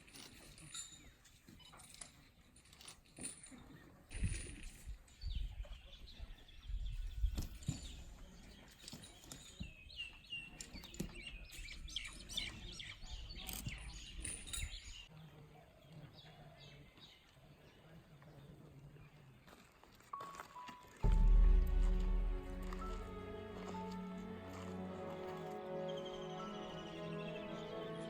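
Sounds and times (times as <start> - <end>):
low rumble: 21.0 - 24.4.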